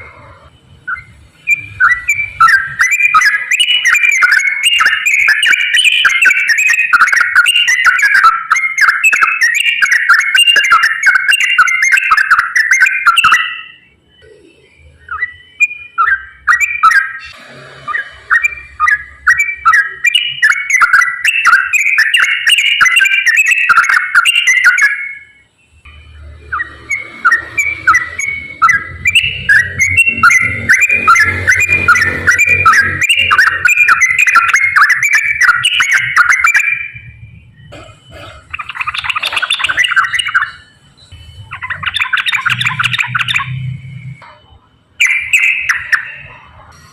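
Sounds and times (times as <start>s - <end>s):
bird singing rapid whistled notes: 0.0s - 37.7s, 38.5s - 46.9s.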